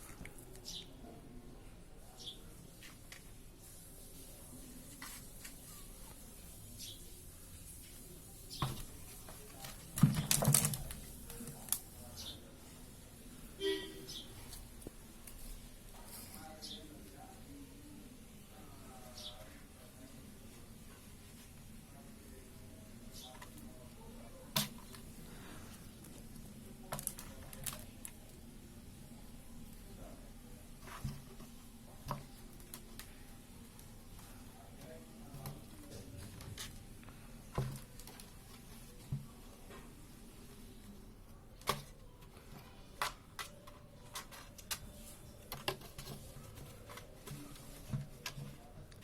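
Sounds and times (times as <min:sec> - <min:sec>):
kitten moving in plastic pot: 0:08.5 - 0:11.8.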